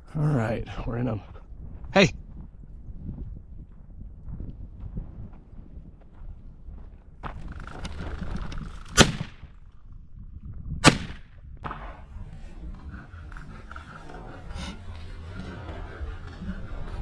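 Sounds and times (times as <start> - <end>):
shotgun shots with echo: 8.9 - 9.5, 10.8 - 12.0.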